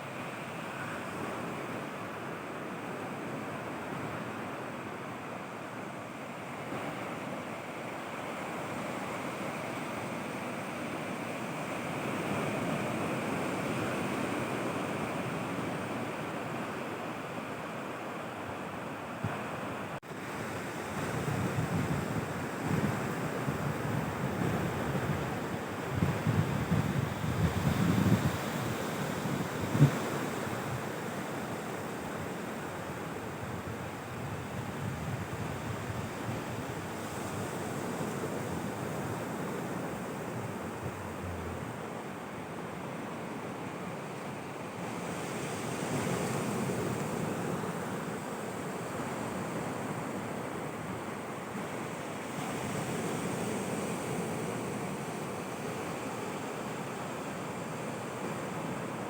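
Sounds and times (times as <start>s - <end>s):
sea waves on a beach: 0.0s - 59.0s
wind buffeting microphone: 20.9s - 31.0s, 33.0s - 42.2s.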